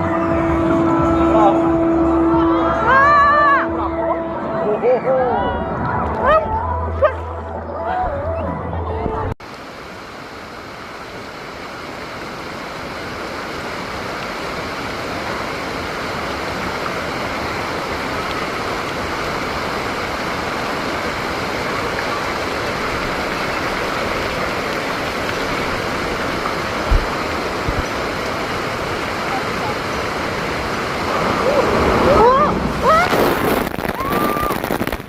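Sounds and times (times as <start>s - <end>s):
water rushing: 0.0s - 8.4s, 9.1s - 35.0s
short low thumps: 26.8s - 27.9s.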